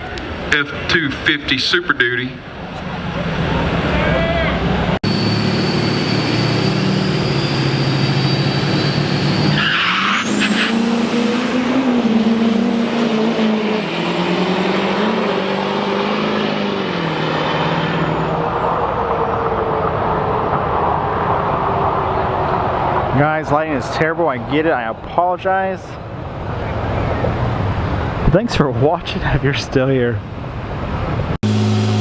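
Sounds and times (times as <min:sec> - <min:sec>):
truck engine running hard: 0:02.4 - 0:23.1, 0:30.4 - 0:32.0
high turbo whistle: 0:04.1 - 0:15.4, 0:31.4 - 0:32.0.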